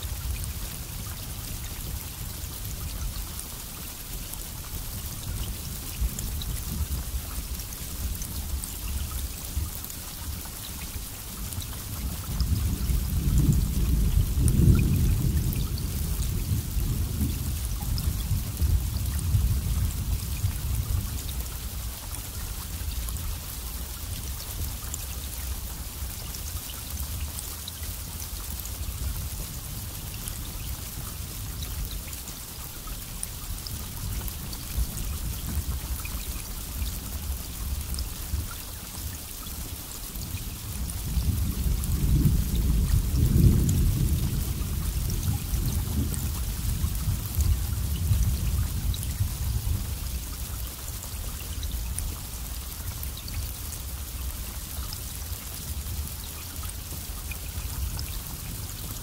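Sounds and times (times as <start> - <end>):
steady rain: 0.0 - 59.0
thunder rumbling: 40.8 - 50.0.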